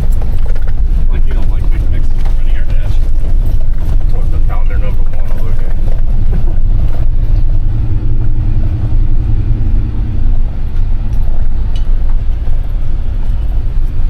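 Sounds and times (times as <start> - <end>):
vehicle rumble from inside cab: 0.0 - 14.0
faint engine note: 4.5 - 14.0.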